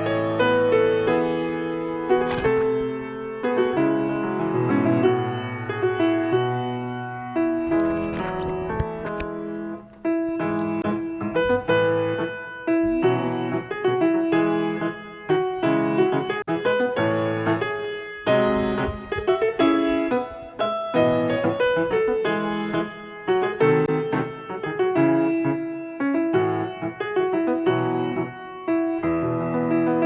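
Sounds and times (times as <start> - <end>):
slow piano chords: 0.0 - 30.0.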